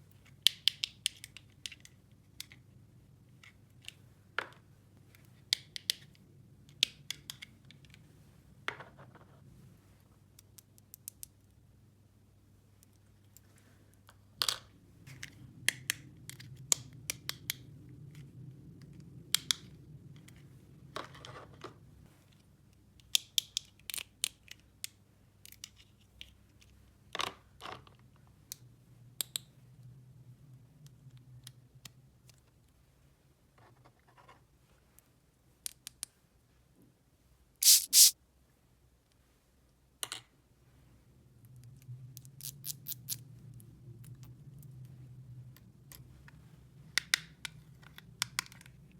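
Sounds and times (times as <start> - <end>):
small objects clicking and scraping: 37.6 - 38.2.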